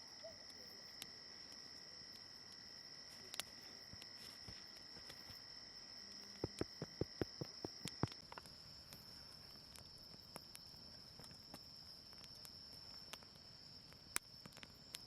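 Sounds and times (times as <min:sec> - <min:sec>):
insects chirring: 0:00.0 - 0:15.0
sharp clicks: 0:06.1 - 0:08.4.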